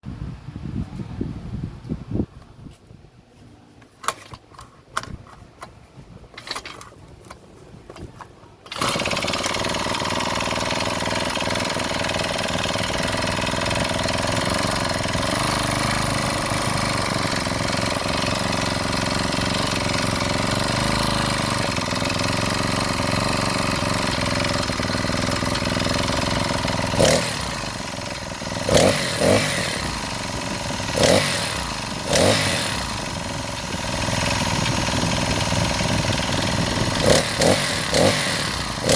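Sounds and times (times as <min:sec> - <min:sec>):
small engine running: 0:08.6 - 0:38.9.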